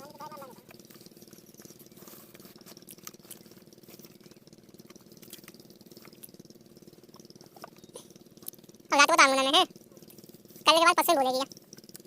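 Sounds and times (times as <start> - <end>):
diesel pump engine chugging: 0.0 - 12.0.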